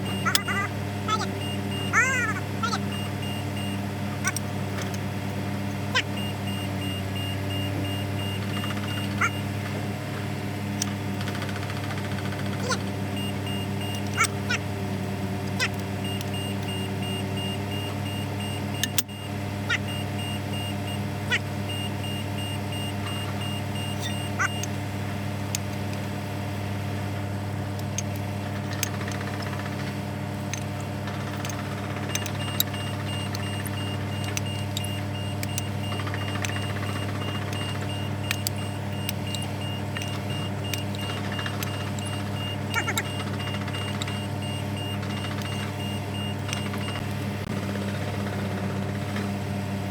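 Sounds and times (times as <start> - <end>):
rapid high electronic beeps: 0.0 - 3.9, 6.0 - 9.5, 12.7 - 14.6, 16.0 - 24.7, 31.4 - 47.0
machine humming: 0.0 - 47.7
sharp metallic clicks and knocks: 6.0 - 9.8, 10.8 - 14.6, 15.5 - 24.8, 27.7 - 47.0.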